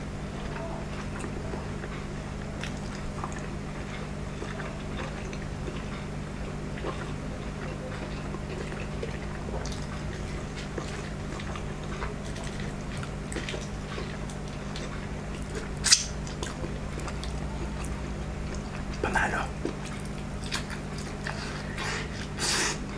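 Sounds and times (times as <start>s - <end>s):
steady low hum: 0.0s - 22.9s
chewing noodles: 0.3s - 22.9s
wet sucking smack: 15.8s - 16.3s.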